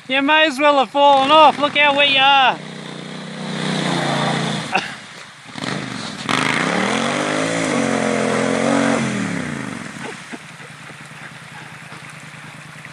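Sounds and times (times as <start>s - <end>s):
motorcycle engine revving: 1.2s - 12.9s.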